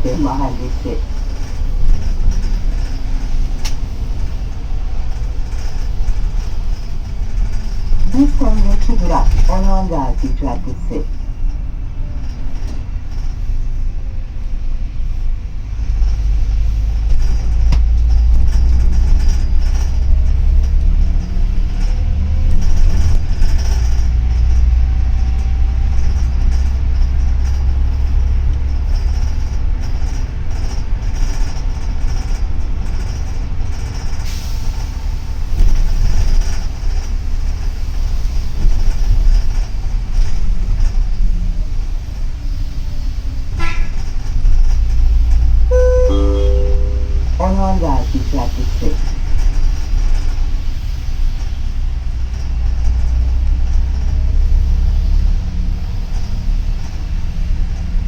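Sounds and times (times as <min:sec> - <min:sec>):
bus engine and road rumble: 0:00.0 - 0:58.0
faint whining tones: 0:45.7 - 0:49.0.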